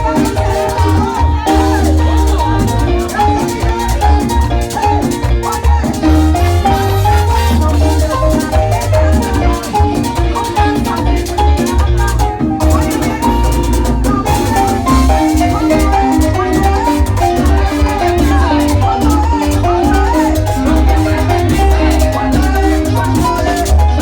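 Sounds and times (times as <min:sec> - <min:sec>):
latin dance music with heavy bass: 0:00.0 - 0:24.0.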